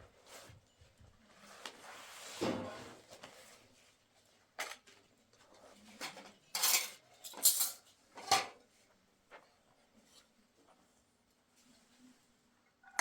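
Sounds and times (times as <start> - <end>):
dishes and utensils clattering: 6.0 - 8.6.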